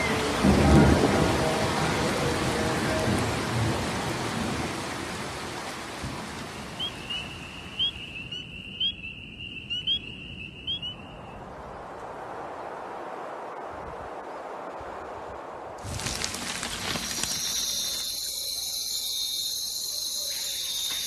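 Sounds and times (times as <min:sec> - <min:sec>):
steady rain: 0:00.0 - 0:08.5, 0:11.6 - 0:21.0
high trill with chirps: 0:17.2 - 0:21.0.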